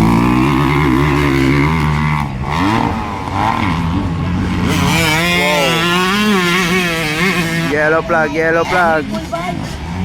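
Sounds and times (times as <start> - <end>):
motocross bike engines revving: 0.0 - 10.0.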